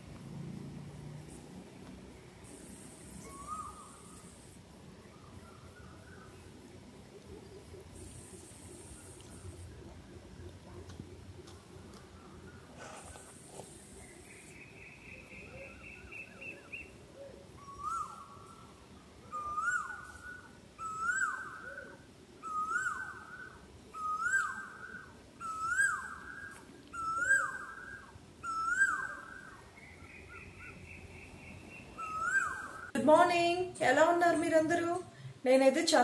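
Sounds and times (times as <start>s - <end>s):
bird calling rising falling note: 32.0s - 32.9s.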